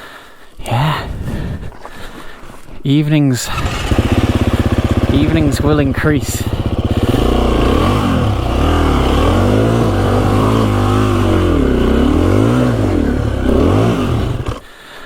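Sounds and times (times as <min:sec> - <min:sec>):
dirt bike engine revving: 0:03.5 - 0:14.6.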